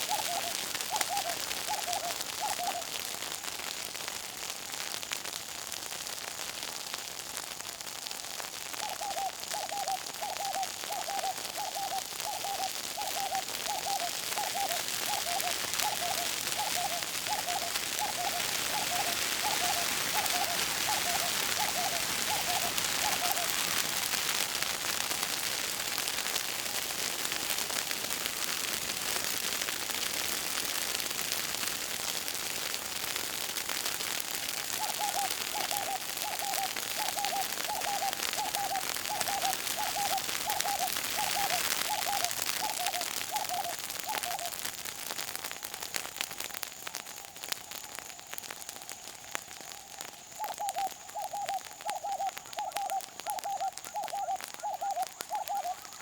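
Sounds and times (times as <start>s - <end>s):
bush fire crackling and hissing: 0.0s - 56.0s
bird calling short repeated notes: 50.5s - 55.9s.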